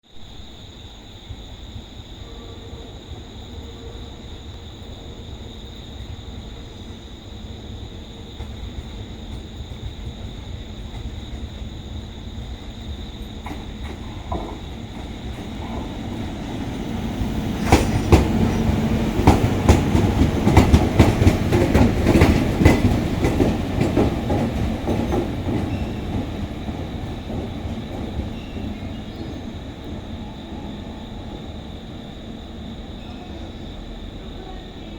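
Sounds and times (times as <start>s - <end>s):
wheels clacking over rail joints: 13.2s - 30.6s.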